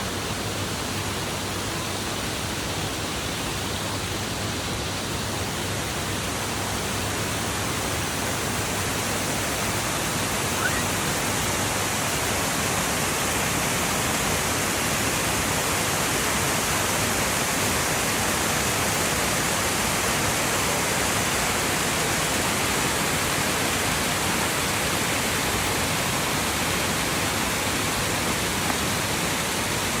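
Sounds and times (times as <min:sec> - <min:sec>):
rushing water: 0:00.0 - 0:30.0.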